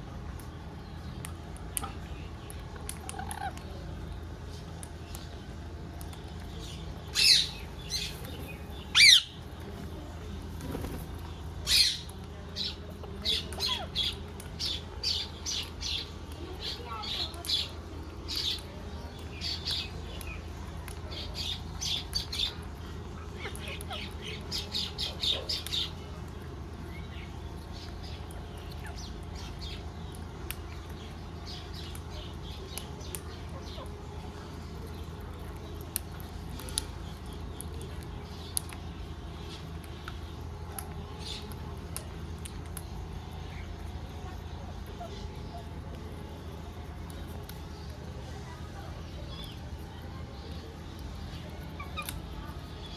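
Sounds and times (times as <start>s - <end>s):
steady low hum: 0.0s - 52.9s
parrot chirping: 7.2s - 9.4s
parrot chirping squawks: 8.9s - 9.4s.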